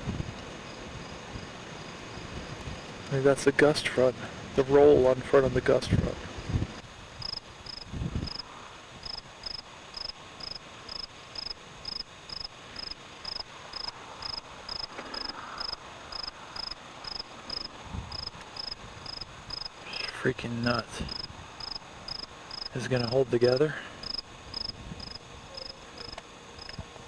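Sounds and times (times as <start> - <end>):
cricket chirping: 7.2 - 20.1, 20.7 - 27.0.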